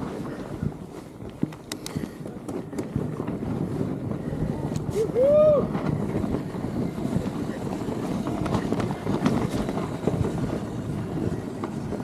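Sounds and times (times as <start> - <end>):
bike tyres rumbling on snow: 0.0 - 12.0
wind on microphone: 0.0 - 12.0.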